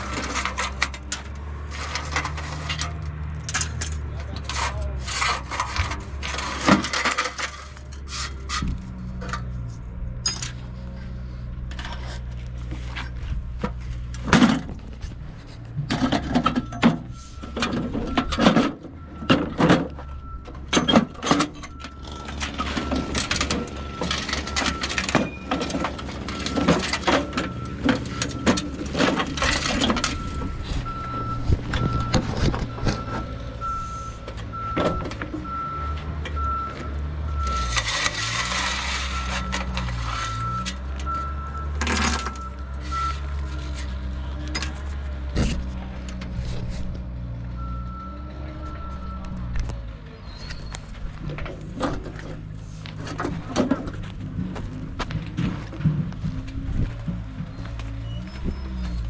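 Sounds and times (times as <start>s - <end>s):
high warning beep: 32.8s - 37.7s
knocks and clanks: 51.1s - 57.8s.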